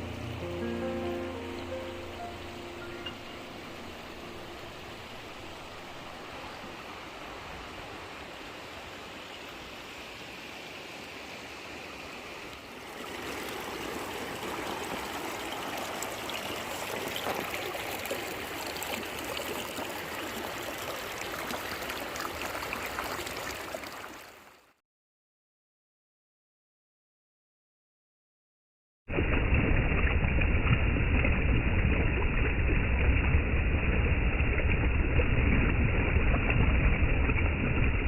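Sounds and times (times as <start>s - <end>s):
stream water rushing: 0.0s - 24.7s.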